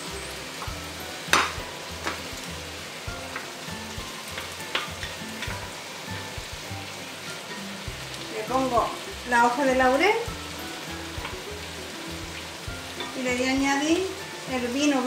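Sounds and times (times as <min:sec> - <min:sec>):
food sizzling in oil: 0:00.0 - 0:15.0
wooden spatula clacking on pot: 0:01.3 - 0:02.3, 0:04.2 - 0:05.6.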